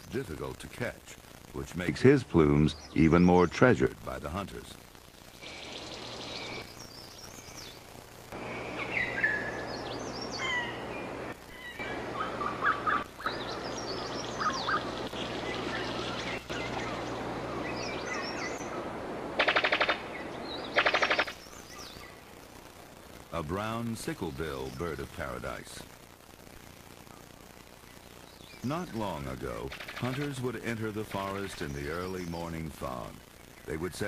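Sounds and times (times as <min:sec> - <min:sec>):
forest background hum: 0:00.0 - 0:34.0
birds whistling and chirping: 0:08.5 - 0:18.8
bird rattling call: 0:19.4 - 0:22.2, 0:29.7 - 0:30.4.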